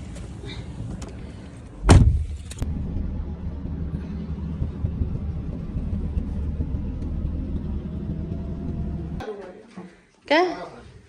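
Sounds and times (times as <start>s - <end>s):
muffled car rumble: 0.0s - 9.2s
car door shutting: 1.8s - 2.6s.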